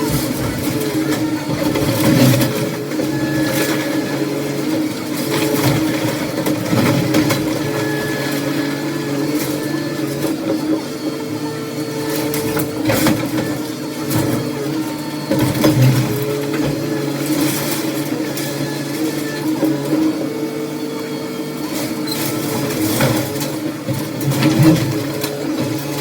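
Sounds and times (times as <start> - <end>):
heavy machinery engine running: 0.0 - 26.0
debris knocking and clattering: 22.3 - 26.0.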